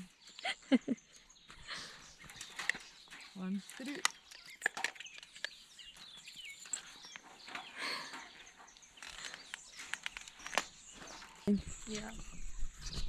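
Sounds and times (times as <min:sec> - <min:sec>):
birds chirping: 0:00.0 - 0:13.0
clicks and rustles of movement: 0:01.6 - 0:13.0.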